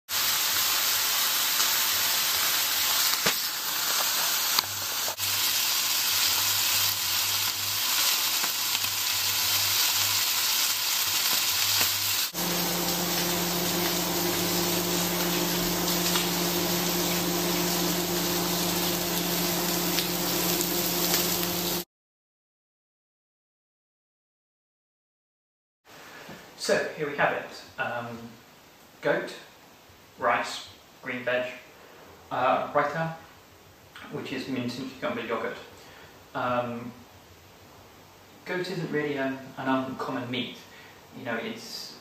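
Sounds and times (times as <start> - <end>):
meat sizzling in a pan: 0.1 - 21.8
steady low hum: 12.4 - 21.8.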